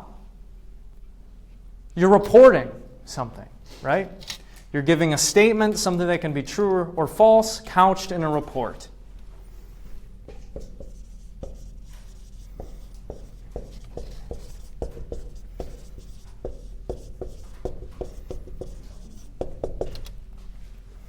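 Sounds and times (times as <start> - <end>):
writing on a board: 10.2 - 20.1.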